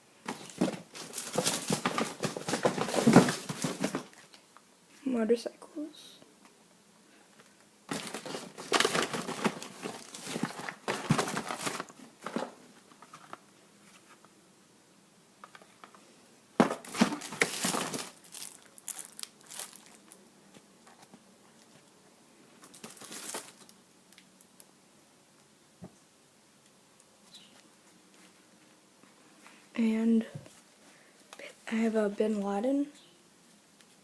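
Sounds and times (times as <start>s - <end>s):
wrappers crinkling and rustling: 0.3s - 4.4s, 7.9s - 13.4s, 16.8s - 20.2s, 22.6s - 23.8s.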